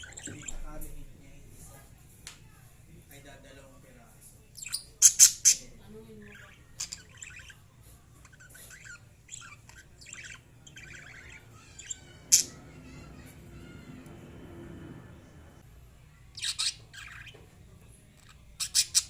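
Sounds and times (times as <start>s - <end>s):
lovebirds squawking: 0.0s - 0.7s, 4.6s - 7.6s, 8.2s - 15.6s, 16.4s - 17.4s, 18.2s - 19.0s
lovebirds chattering chirps: 0.0s - 0.9s, 4.5s - 14.1s, 16.3s - 19.0s.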